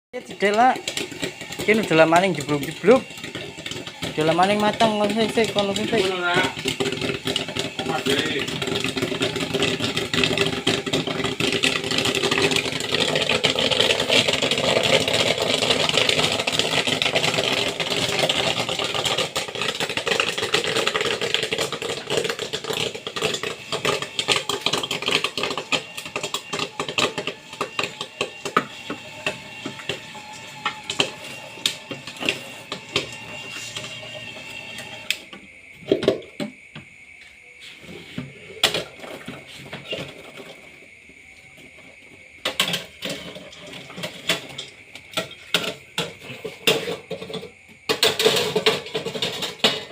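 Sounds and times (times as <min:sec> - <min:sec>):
popcorn machine motor running: 0:00.2 - 0:35.3
corn popping: 0:00.2 - 0:49.9.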